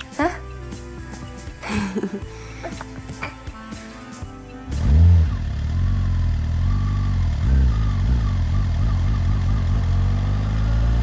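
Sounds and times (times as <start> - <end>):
vehicle engine running: 4.7 - 11.0.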